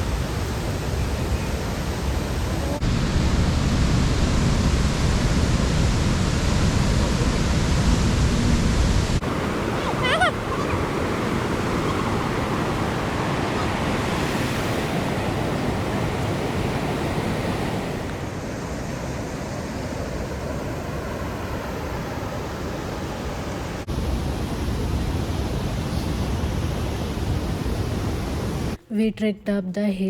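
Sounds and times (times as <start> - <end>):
waterfall roaring: 0.0 - 18.7.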